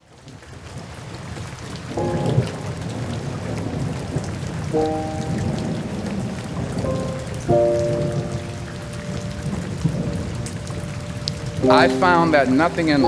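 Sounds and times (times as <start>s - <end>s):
rain falling: 0.0s - 13.0s
sustained music chords: 2.0s - 3.4s, 4.8s - 13.0s.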